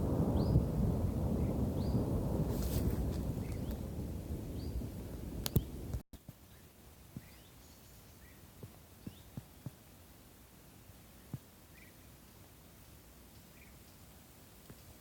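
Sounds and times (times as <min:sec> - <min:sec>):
wind buffeting microphone: 0:00.0 - 0:06.0
faint bird chirps: 0:06.4 - 0:09.8, 0:10.7 - 0:14.9.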